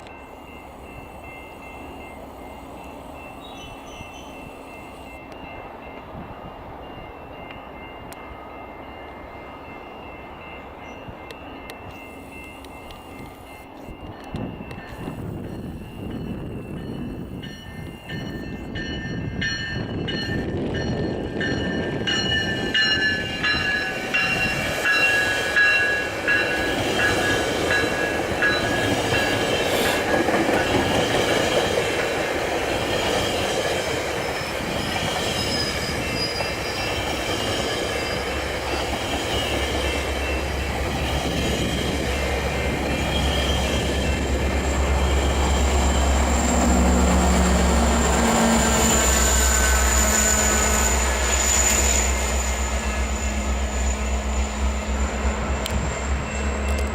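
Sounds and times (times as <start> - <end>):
train wheels rumbling on rails: 0.0 - 56.9
high-pitched wheel squeal: 47.8 - 54.6.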